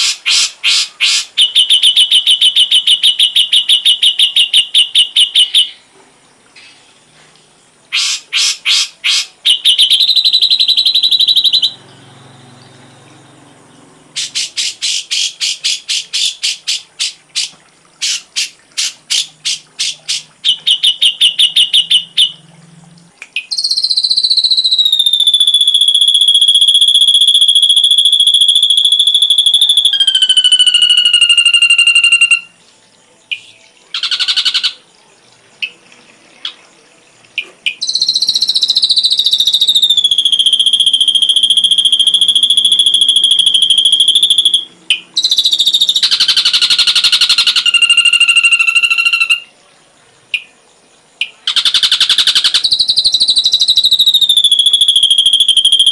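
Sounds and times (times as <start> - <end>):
bird song with sharp repeated notes: 8.0 - 22.4, 23.2 - 25.3, 29.6 - 34.9
long high falling whistle: 23.6 - 32.5, 37.9 - 46.7, 47.3 - 49.5, 52.4 - 55.9.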